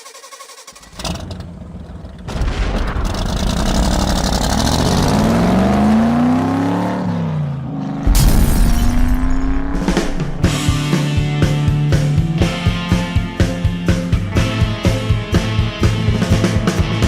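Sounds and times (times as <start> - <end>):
car engine revving: 2.9 - 12.4.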